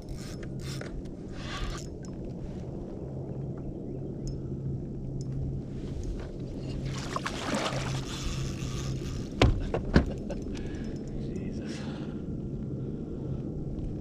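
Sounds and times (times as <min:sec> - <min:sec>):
steady low hum: 0:00.0 - 0:14.0
low rumble: 0:01.0 - 0:09.3, 0:10.2 - 0:14.0
rush of water: 0:06.8 - 0:08.1.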